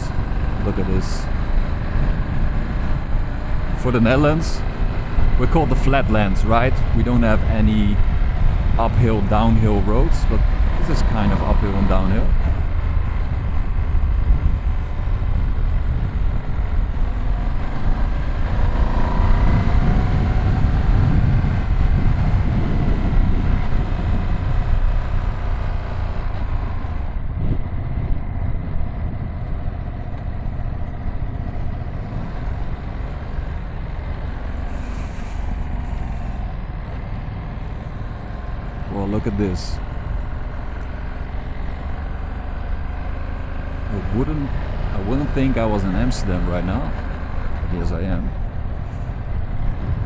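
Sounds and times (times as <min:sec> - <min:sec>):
wind noise: 0:00.0 - 0:40.4, 0:43.2 - 0:50.0
motorcycle engine running: 0:00.0 - 0:50.0
road noise: 0:00.0 - 0:50.0.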